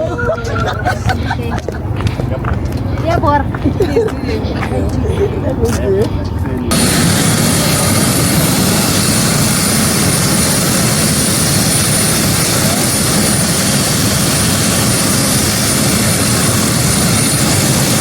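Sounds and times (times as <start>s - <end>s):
vehicle rushing roar: 6.3s - 18.0s
faint high whine: 6.6s - 18.0s.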